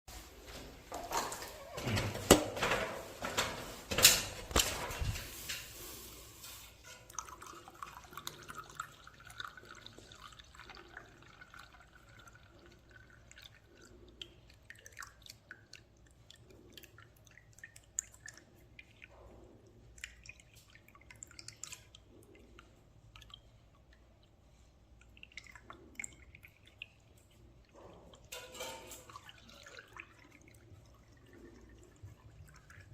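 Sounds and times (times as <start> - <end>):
water trickling and dripping: 4.5 - 32.9
water splashing into pan: 28.2 - 30.4.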